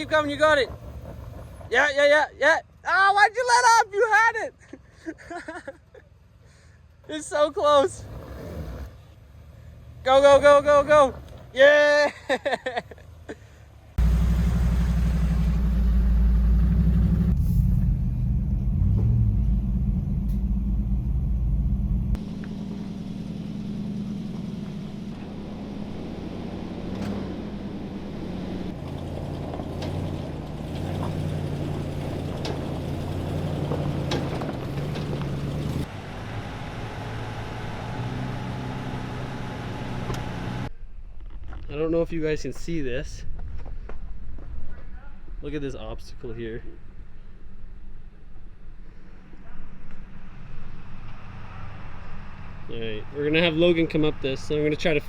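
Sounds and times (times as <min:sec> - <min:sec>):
off-road engines rumbling: 0:00.0 - 0:55.0.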